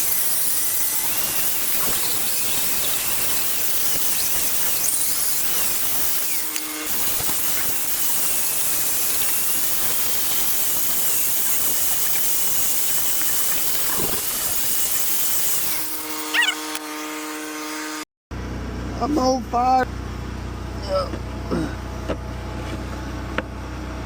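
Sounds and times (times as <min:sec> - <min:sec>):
cutting torch hissing: 0:00.0 - 0:17.1.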